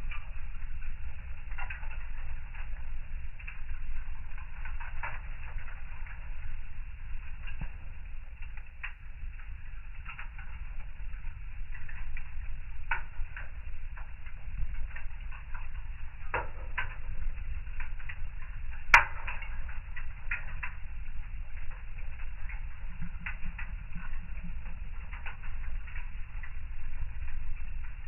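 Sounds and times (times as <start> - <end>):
low steady rumble: 0.0 - 28.0
wood fire crackling: 0.0 - 28.0.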